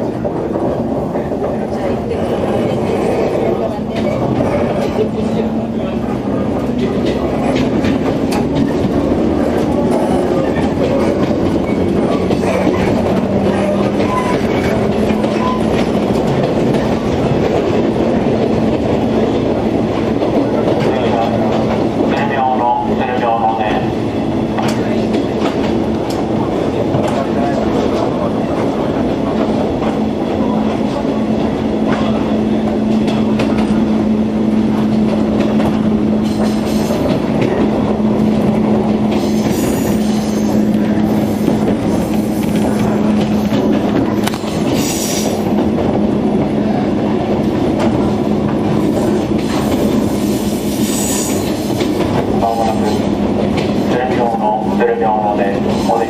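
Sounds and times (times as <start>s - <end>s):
train motor hum: 0.0s - 56.0s
wheel and track rumble: 0.0s - 56.0s
wheels squealing: 9.4s - 16.0s, 39.1s - 45.4s.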